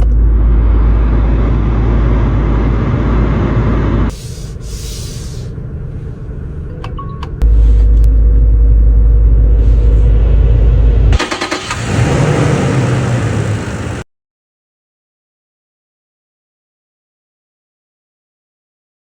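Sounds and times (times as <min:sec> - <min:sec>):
vehicle engine deep rumble: 0:00.0 - 0:14.0.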